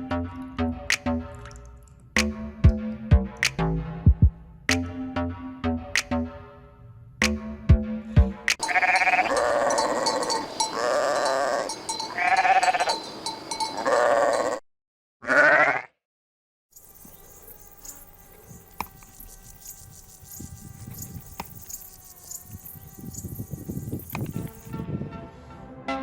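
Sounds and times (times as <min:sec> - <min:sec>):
sheep bleating: 0:08.6 - 0:13.0, 0:13.8 - 0:14.6, 0:15.2 - 0:16.0
faint steady tones: 0:16.8 - 0:24.7.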